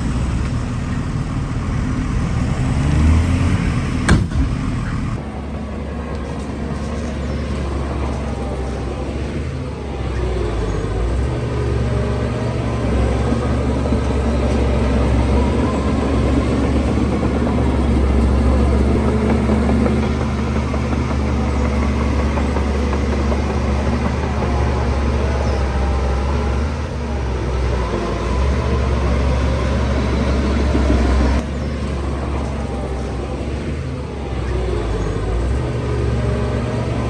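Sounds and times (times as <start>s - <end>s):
heavy machine diesel engine running: 0.0s - 37.0s.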